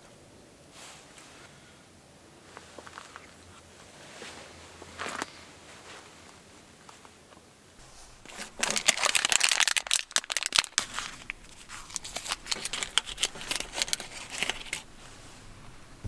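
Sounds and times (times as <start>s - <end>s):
plastic wrapper crinkling: 7.8s - 16.0s.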